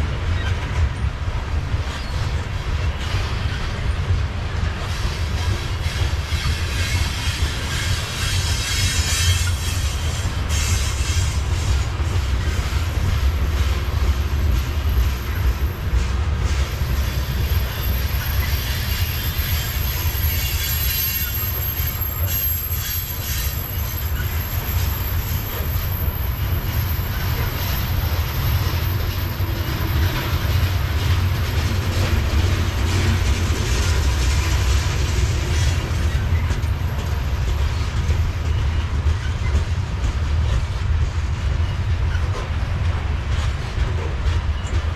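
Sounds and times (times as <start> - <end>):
freight train wheels rumbling: 0.0 - 44.9
high wheel squeal: 5.4 - 12.8, 16.7 - 39.6.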